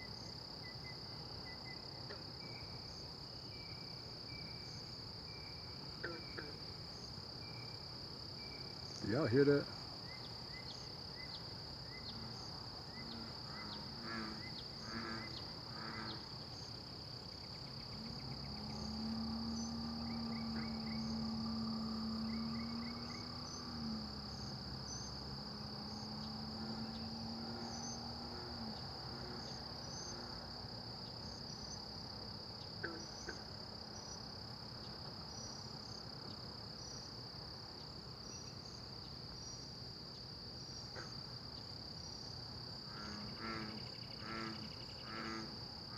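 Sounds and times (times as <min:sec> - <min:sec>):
insect chirps: 0:00.0 - 0:45.9
pulsed insect calls: 0:17.3 - 0:30.3, 0:43.0 - 0:45.9.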